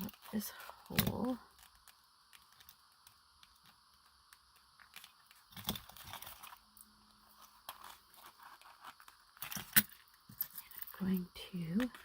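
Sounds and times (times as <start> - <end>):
paper rustling: 7.3 - 9.7.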